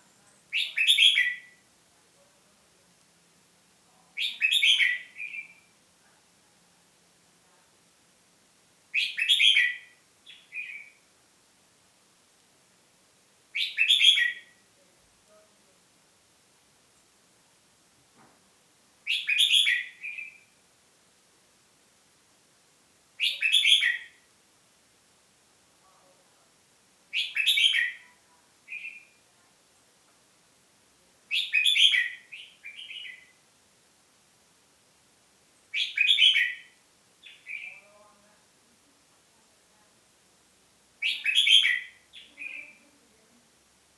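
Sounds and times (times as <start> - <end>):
songbird singing: 0.0 - 1.7, 3.9 - 5.8, 8.9 - 11.1, 13.5 - 14.7, 19.0 - 20.6, 23.2 - 24.3, 27.1 - 29.9, 31.2 - 33.4, 35.6 - 38.4, 41.0 - 43.0.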